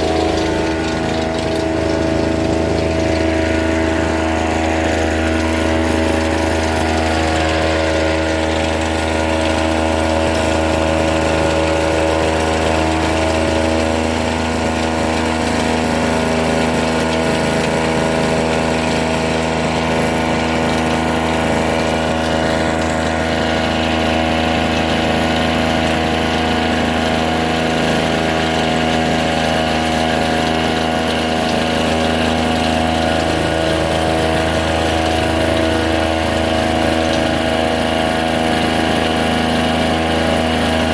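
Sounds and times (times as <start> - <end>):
small two-stroke engine running: 0.0 - 40.9.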